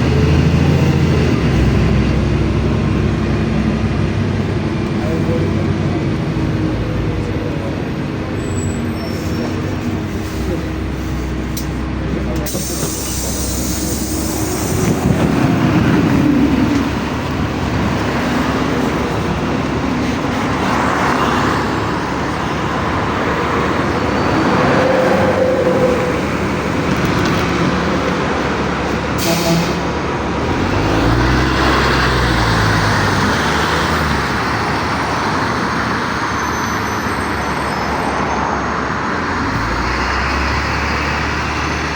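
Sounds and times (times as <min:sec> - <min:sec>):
bus engine and road noise: 0:00.0 - 0:41.9
air hiss: 0:12.5 - 0:15.0.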